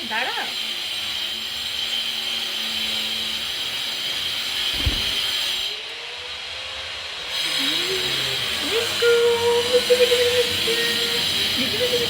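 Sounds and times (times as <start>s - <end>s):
power tool whining: 1.6s - 12.0s
thump: 4.7s - 5.5s.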